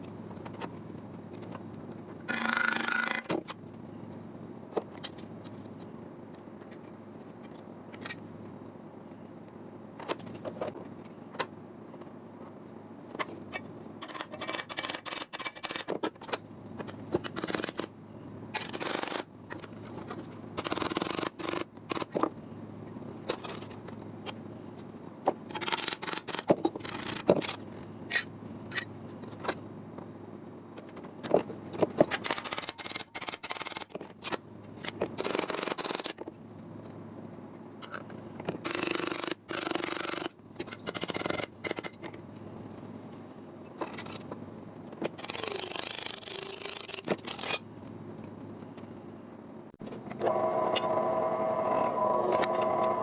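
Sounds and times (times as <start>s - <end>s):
sharp clicks and snips: 14.0s - 17.9s, 20.6s - 22.3s, 25.5s - 28.9s, 32.0s - 36.3s, 38.5s - 42.2s, 45.0s - 47.6s.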